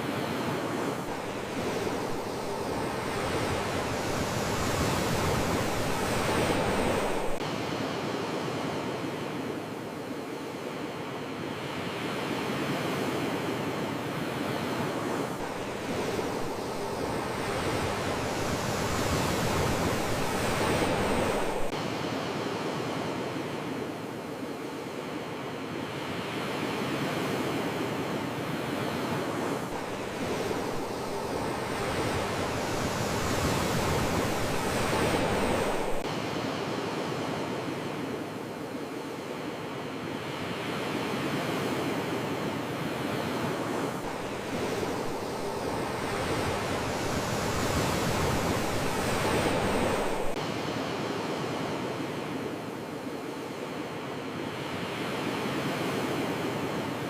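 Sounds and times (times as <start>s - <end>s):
sea waves washing on shore: 0.0s - 57.0s.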